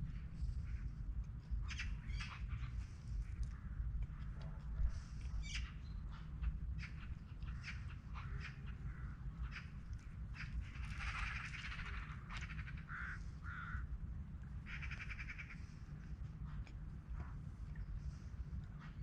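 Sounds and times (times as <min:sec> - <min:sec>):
low steady rumble: 0:00.0 - 0:19.0
birds calling: 0:01.6 - 0:03.8, 0:04.9 - 0:13.8, 0:14.7 - 0:16.6.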